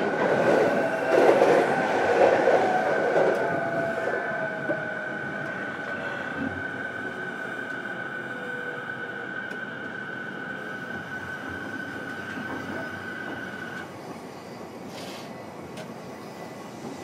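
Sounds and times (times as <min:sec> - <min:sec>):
electric train rumbling: 0:00.0 - 0:17.0
brief hiss: 0:14.9 - 0:15.3.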